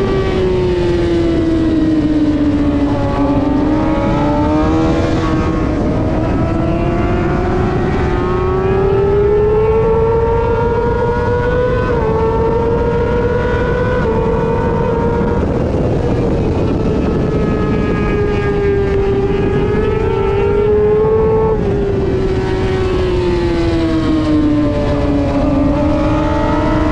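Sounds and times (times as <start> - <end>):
motorcycle engine revving: 0.0 - 26.9
wind rush on microphone: 0.0 - 26.9.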